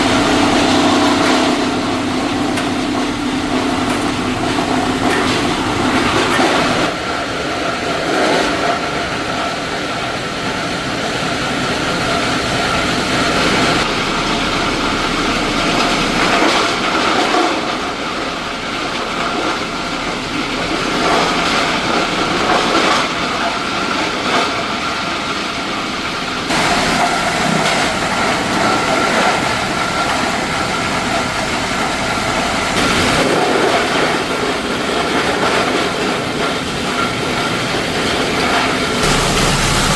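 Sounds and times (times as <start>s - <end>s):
machinery hum: 0.0s - 7.6s, 11.0s - 22.8s, 26.3s - 33.4s, 39.0s - 39.9s
machinery rattling clatter: 0.0s - 39.9s.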